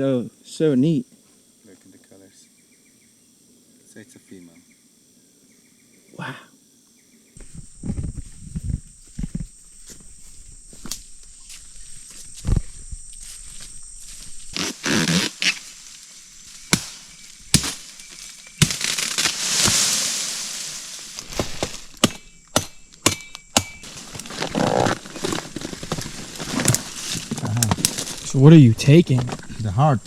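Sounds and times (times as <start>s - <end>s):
leaves rustling and tearing: 10.4s - 22.0s, 23.8s - 29.6s
machete chopping into wood: 16.6s - 18.0s, 18.6s - 19.9s, 21.2s - 23.8s.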